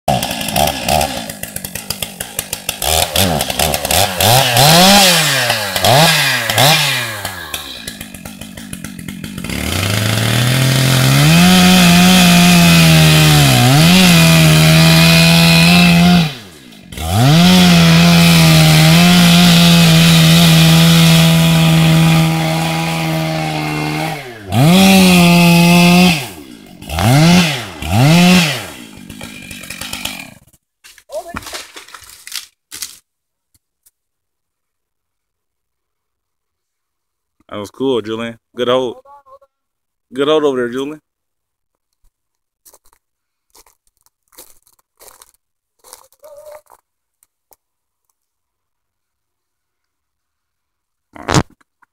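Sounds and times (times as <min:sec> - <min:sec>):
chainsaw cutting wood: 0:00.1 - 0:33.0.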